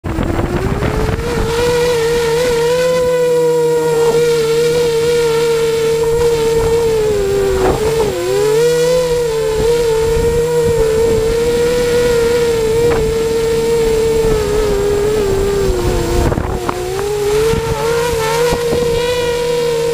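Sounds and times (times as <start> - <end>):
quadcopter motors whining: 0.0 - 19.9.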